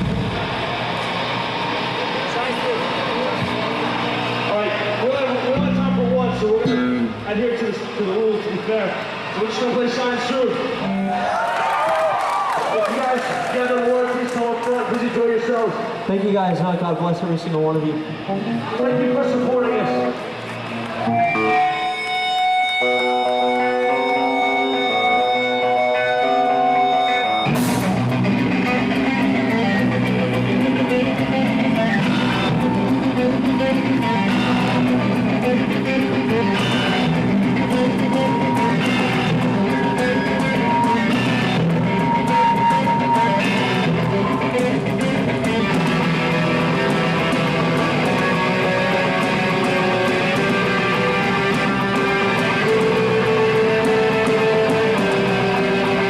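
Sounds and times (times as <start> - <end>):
live rock band playing: 0.0 - 8.0, 17.7 - 56.0
drums: 0.0 - 13.5, 14.2 - 56.0
guitar picking held notes: 18.1 - 56.0.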